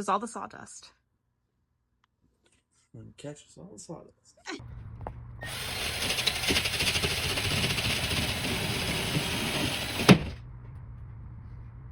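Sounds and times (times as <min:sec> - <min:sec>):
drill with hole saw running: 0:05.4 - 0:10.4.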